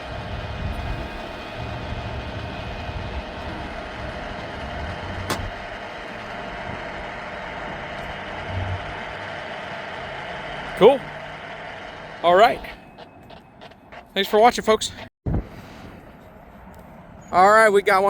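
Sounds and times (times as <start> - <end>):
wind buffeting microphone: 0.0 - 9.3
vehicle engine idling: 0.0 - 14.8.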